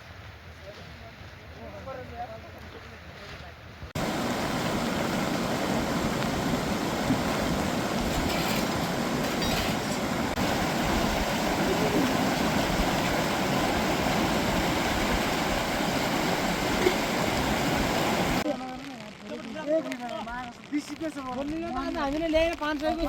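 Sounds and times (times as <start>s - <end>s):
water rushing: 4.0s - 20.6s.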